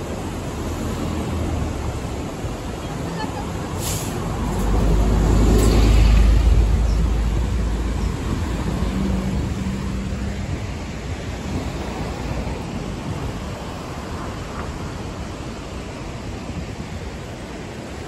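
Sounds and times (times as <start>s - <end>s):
train carriage rumbling: 3.0s - 9.8s
rush of air: 3.7s - 18.0s.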